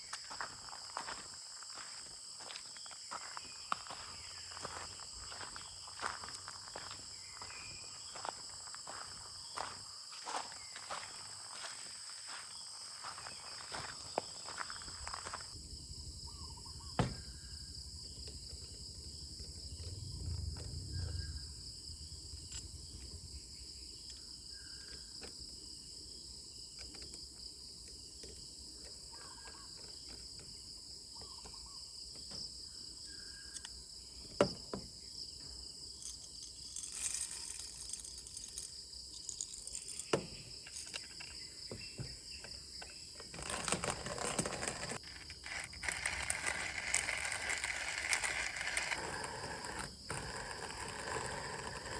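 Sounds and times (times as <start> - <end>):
crickets trilling: 0.0 - 51.9
rustle: 36.0 - 41.4, 43.2 - 51.9.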